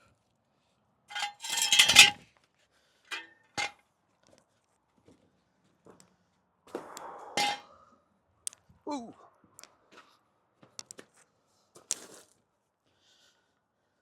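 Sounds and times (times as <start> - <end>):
metal tools clattering: 1.1 - 2.2, 3.1 - 3.7, 7.4 - 7.6.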